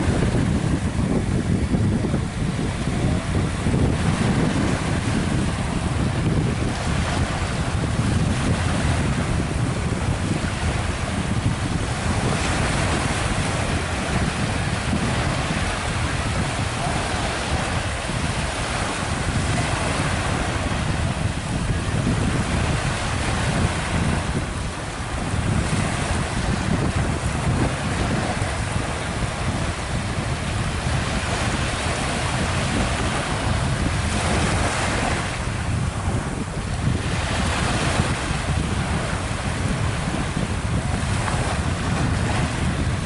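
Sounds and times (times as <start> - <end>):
sea water and surf: 0.0 - 43.0
wind buffeting microphone: 0.0 - 43.0.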